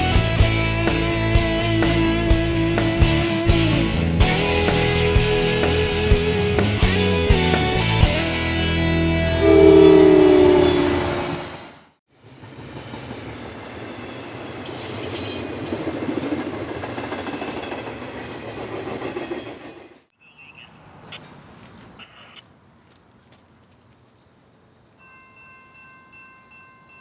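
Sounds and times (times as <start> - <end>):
music: 0.0 - 9.7
freight train rumbling past: 0.0 - 20.1
high-pitched tones: 9.2 - 11.7.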